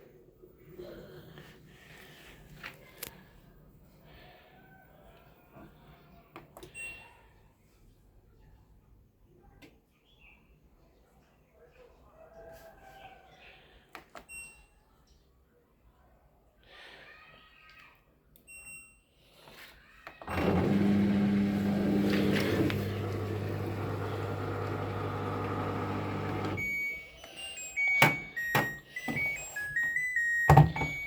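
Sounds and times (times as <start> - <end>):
washing machine motor humming: 20.3 - 27.0.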